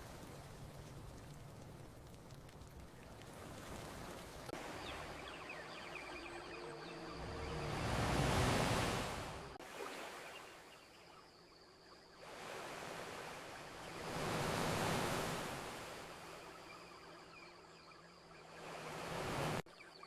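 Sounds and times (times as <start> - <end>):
campfire crackling: 0.0 - 4.8
ocean waves washing onto beach: 0.0 - 10.7, 12.2 - 16.8, 18.4 - 19.6.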